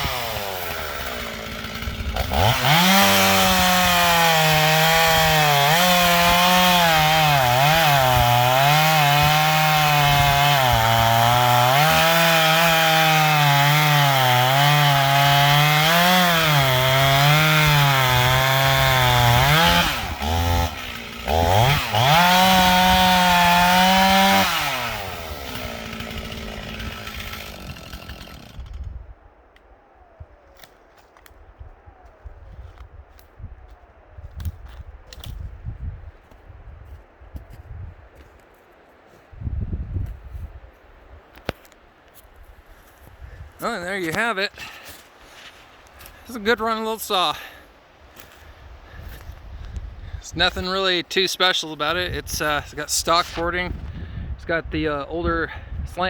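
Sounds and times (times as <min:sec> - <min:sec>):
chainsaw cutting a log: 0:00.0 - 0:29.0.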